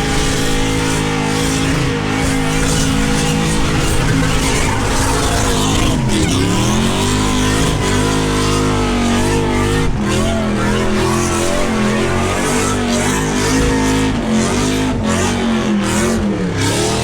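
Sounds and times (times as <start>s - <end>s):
engine revving high: 0.0s - 17.0s.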